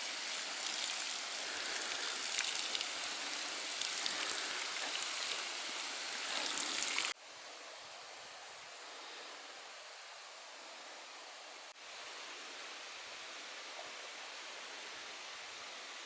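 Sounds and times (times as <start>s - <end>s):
water rushing: 0.0s - 7.2s.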